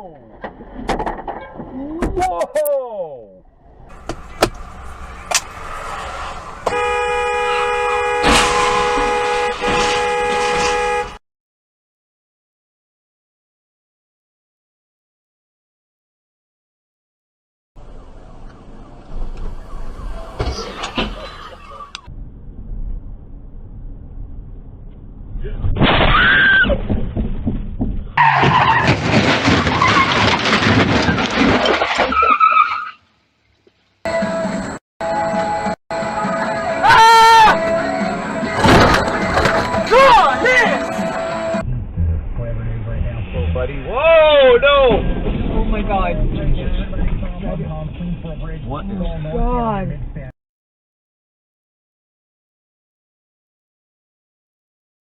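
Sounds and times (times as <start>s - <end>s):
car engine: 3.5s - 11.2s, 17.8s - 25.5s
loud impact: 3.7s - 11.1s, 25.4s - 31.7s
vehicle horn blast: 6.6s - 11.2s
tyres squealing: 28.2s - 31.2s, 32.0s - 33.1s.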